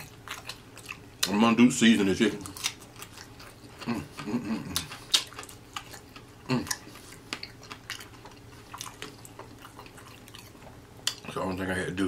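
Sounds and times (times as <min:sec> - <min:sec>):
person chewing with lip smacks: 0:00.0 - 0:01.4, 0:02.3 - 0:11.4
person humming mm: 0:03.8 - 0:04.9, 0:06.4 - 0:06.8.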